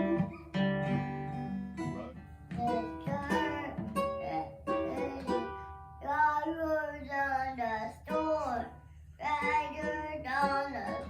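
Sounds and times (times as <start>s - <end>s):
acoustic guitar strums: 0.0s - 6.6s.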